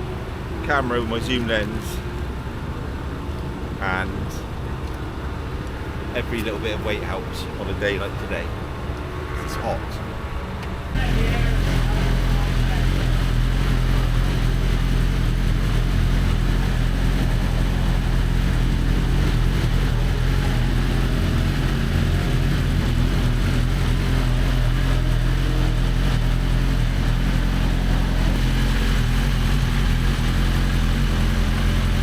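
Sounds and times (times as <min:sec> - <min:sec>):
motor droning steadily: 0:10.9 - 0:32.0.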